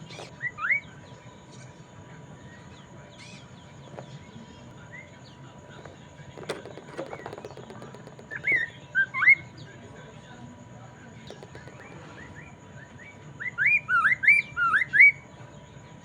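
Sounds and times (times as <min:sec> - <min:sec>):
bird singing whistled notes: 0:08.3 - 0:09.7, 0:12.2 - 0:15.3.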